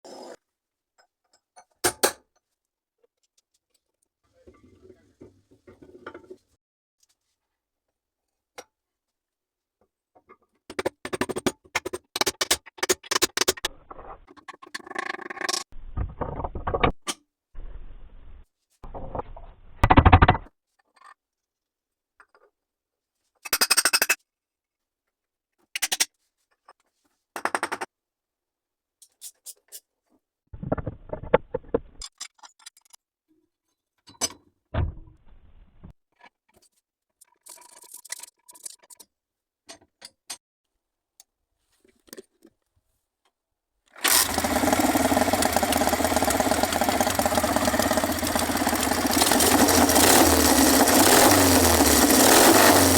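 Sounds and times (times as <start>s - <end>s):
clicks and scrapes of engine work: 44.0s - 52.9s
small engine running: 44.0s - 52.9s.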